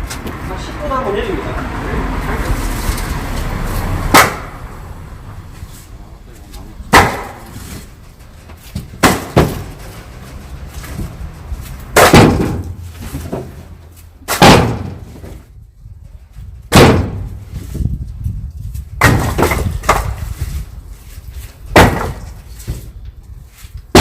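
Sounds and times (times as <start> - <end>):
firewood logs thudding down: 4.1 - 4.6, 6.9 - 15.5, 16.6 - 17.8, 18.8 - 23.0, 23.8 - 24.0.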